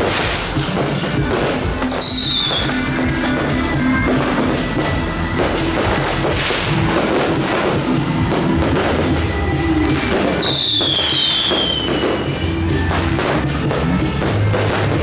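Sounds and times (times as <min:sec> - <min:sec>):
fireworks cracking and banging: 0:00.0 - 0:15.0
loud music: 0:00.0 - 0:15.0
high falling whistle: 0:01.8 - 0:12.5.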